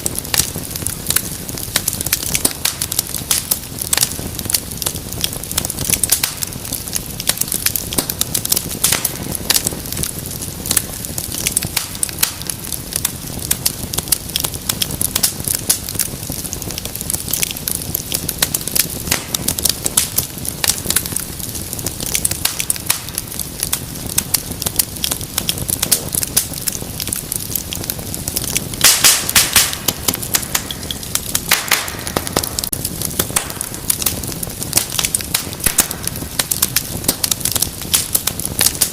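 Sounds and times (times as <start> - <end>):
wood fire crackling: 0.0 - 38.9
sharp pops: 28.4 - 37.3.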